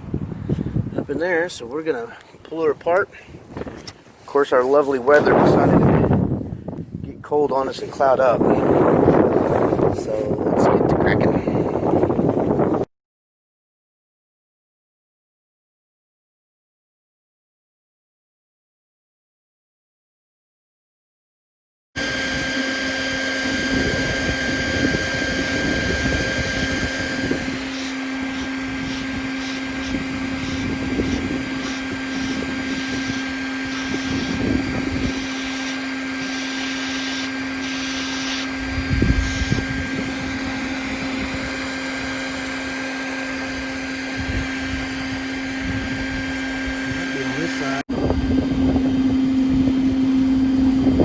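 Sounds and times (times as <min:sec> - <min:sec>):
wind rumble on microphone: 0:00.0 - 0:01.6, 0:03.3 - 0:04.0, 0:04.9 - 0:12.9, 0:22.1 - 0:35.3, 0:38.6 - 0:42.7, 0:43.4 - 0:51.0
vacuum motor humming: 0:22.0 - 0:51.0.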